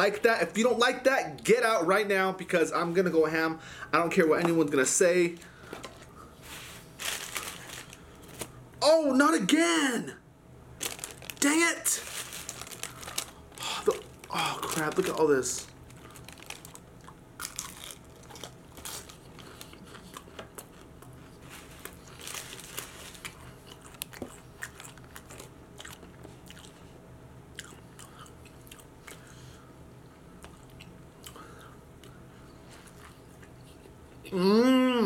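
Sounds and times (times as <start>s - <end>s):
person crunching and chewing food: 5.4s - 8.6s, 10.8s - 26.9s, 27.5s - 29.6s, 30.4s - 34.0s.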